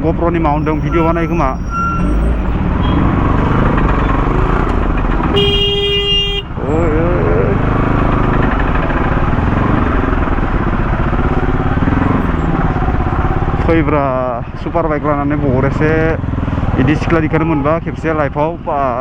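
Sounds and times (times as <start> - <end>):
wind and road noise: 0.0 - 19.0
motorcycle engine running: 2.8 - 19.0
vehicle horn: 5.2 - 6.6.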